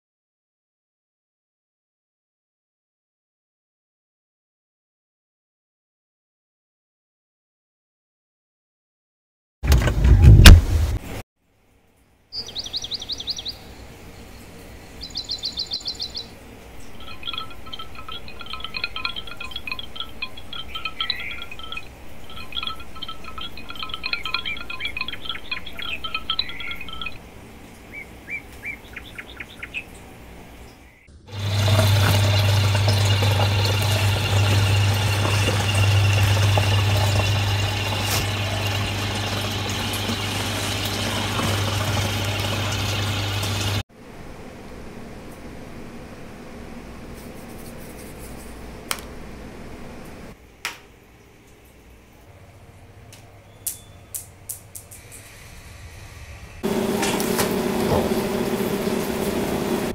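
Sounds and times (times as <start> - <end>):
small birds chirping: 12.3 - 27.2, 27.8 - 31.1
aquarium pump humming: 12.4 - 59.9
water bubbling: 31.3 - 43.8.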